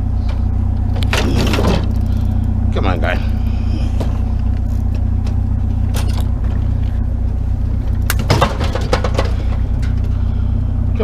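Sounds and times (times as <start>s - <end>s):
truck engine idling: 0.0s - 11.0s
bicycle knocking into truck bed: 8.1s - 10.0s.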